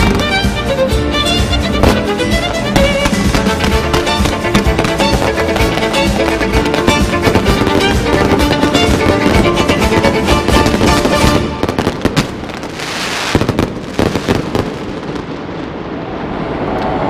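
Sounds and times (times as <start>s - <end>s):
music: 0.0s - 12.6s
fireworks bangs and crackles: 0.0s - 16.5s.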